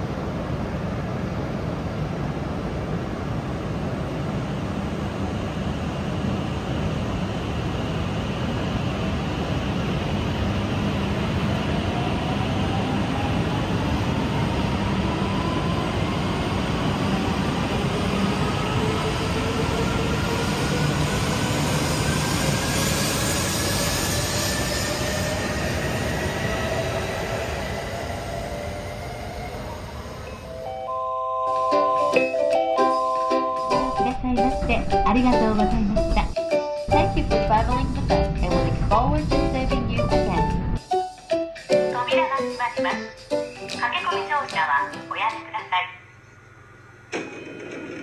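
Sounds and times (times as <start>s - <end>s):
train running rumble: 33.6s - 40.9s.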